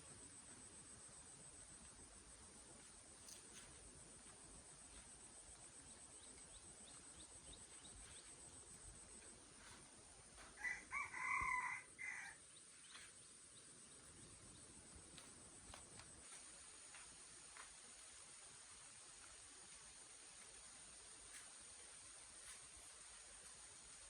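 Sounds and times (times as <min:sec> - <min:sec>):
faint high-pitched whine: 0:00.0 - 0:24.0
rooster crowing: 0:10.6 - 0:12.4.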